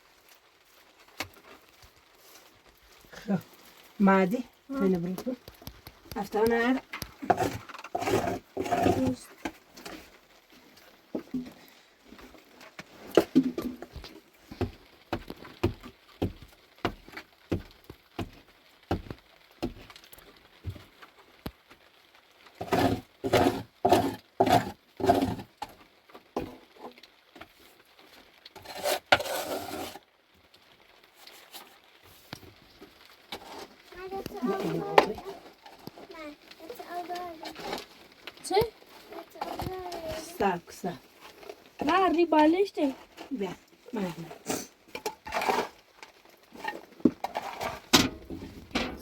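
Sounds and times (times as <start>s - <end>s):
sharp knocks and taps: 14.6s - 19.8s.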